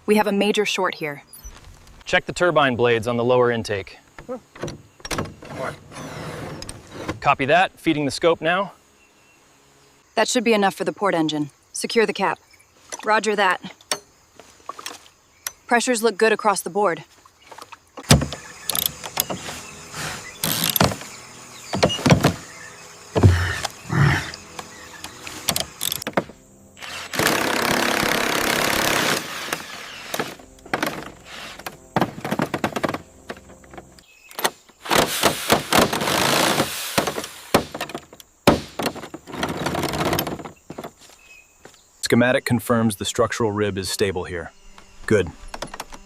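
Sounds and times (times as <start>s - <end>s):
knocks and clunks: 4.0s - 7.6s, 17.5s - 26.4s, 27.2s - 41.0s, 44.7s - 46.0s
loud steady hiss: 18.0s - 34.0s, 34.8s - 39.2s.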